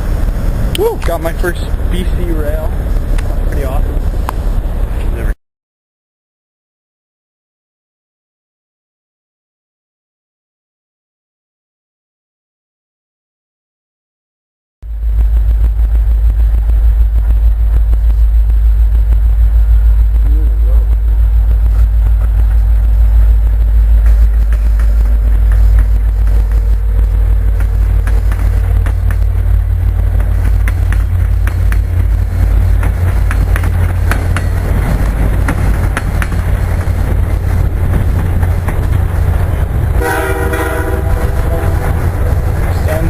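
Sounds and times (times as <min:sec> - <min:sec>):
freight train rumbling: 0:00.0 - 0:05.4, 0:14.8 - 0:43.0
wheel clicks and rattles: 0:23.9 - 0:40.0
locomotive air horn: 0:40.0 - 0:43.0.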